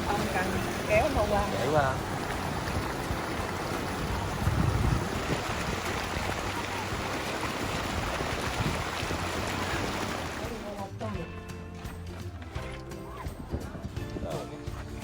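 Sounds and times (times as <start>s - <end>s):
water noise: 0.0s - 15.0s
wind noise: 2.0s - 10.4s, 13.0s - 15.0s.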